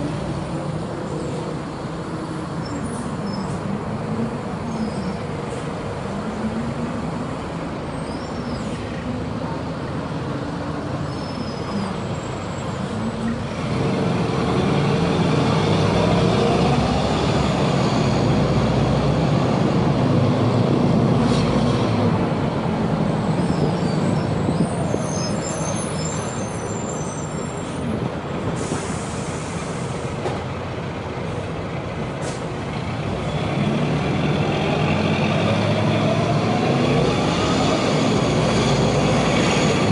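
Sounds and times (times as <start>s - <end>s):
bus diesel engine revving: 0.0s - 39.9s
air brake hiss: 28.6s - 30.1s, 32.2s - 32.5s.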